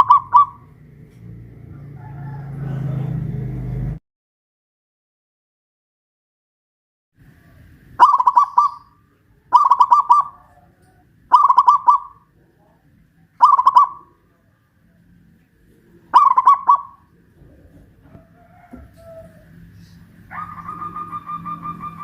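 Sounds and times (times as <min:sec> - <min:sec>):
dove cooing song: 0:00.0 - 0:00.8, 0:08.0 - 0:12.3, 0:13.3 - 0:14.4, 0:15.8 - 0:22.0.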